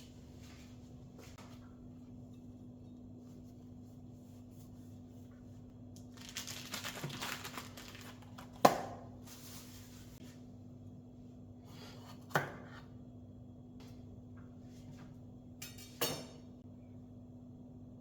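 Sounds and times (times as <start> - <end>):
crinkling rustling handling noise: 5.9 - 8.6.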